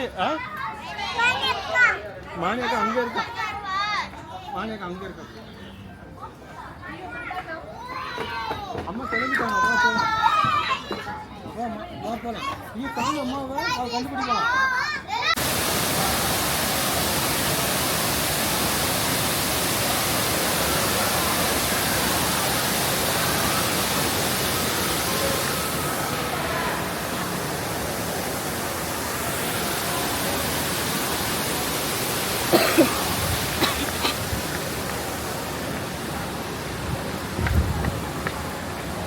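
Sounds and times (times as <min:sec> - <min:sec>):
rushing water: 0:15.3 - 0:39.0.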